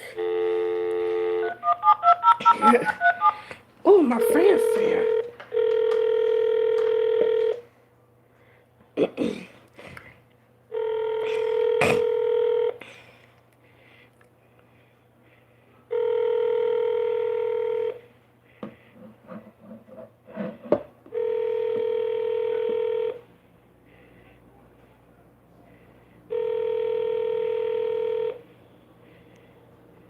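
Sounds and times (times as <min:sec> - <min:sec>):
phone ringback tone: 0:00.0 - 0:03.4, 0:04.2 - 0:07.6, 0:10.7 - 0:12.8, 0:15.9 - 0:18.0, 0:21.1 - 0:23.2, 0:26.3 - 0:28.4.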